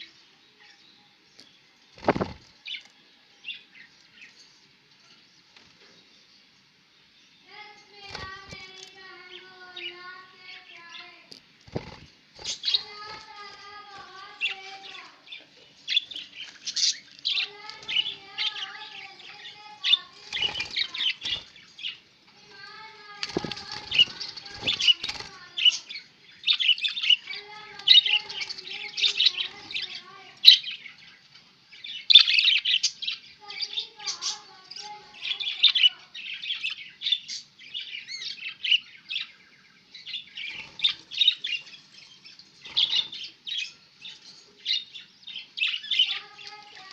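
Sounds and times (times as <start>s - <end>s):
wings flapping: 2.0s - 2.6s, 8.0s - 8.8s, 11.6s - 14.4s, 19.9s - 21.7s, 23.1s - 25.8s
budgerigars chattering: 15.9s - 22.0s.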